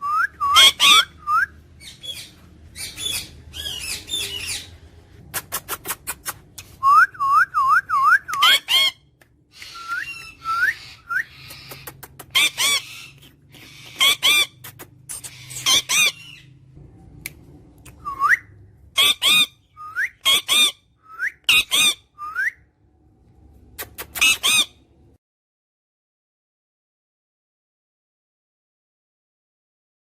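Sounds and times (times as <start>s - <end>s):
parrot squawking: 0.0s - 4.8s, 8.0s - 16.6s, 19.0s - 20.8s, 21.5s - 22.3s, 23.8s - 24.8s
parrot rising whistles: 9.6s - 11.4s.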